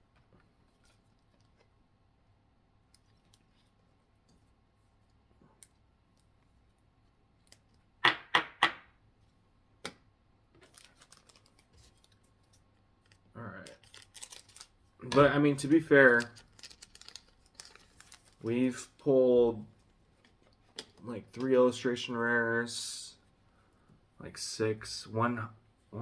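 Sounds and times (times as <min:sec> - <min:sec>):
light clicks and rustles: 0:10.5 - 0:15.4, 0:16.1 - 0:18.6.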